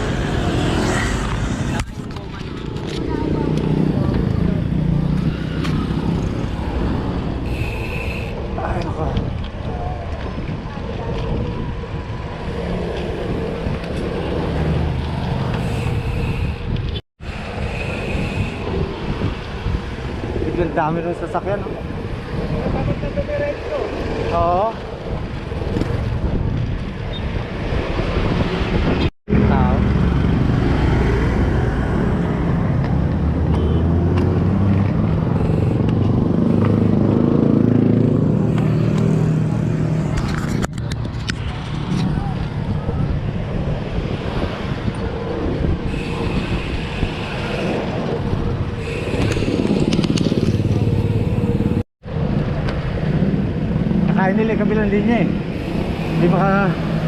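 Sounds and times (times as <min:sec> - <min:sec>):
wind rush: 0:00.0 - 0:33.4, 0:34.3 - 0:57.0
road noise: 0:00.0 - 0:57.0
rumble of traffic: 0:00.0 - 0:57.0.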